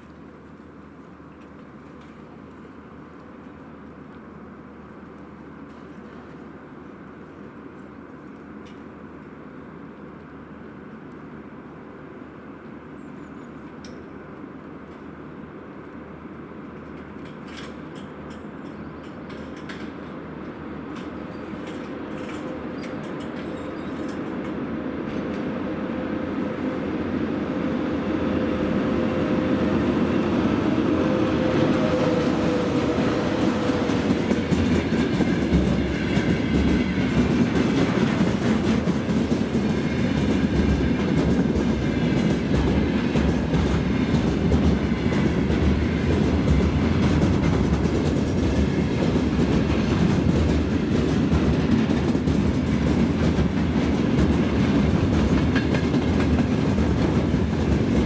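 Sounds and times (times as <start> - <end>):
freight train wheels clattering: 16.8 - 25.5, 27.6 - 58.0.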